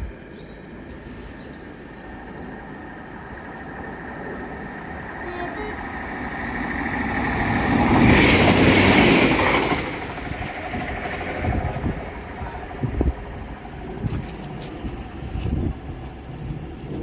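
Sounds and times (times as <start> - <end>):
diesel train passing: 0.0 - 17.0
train knocks: 3.1 - 16.0.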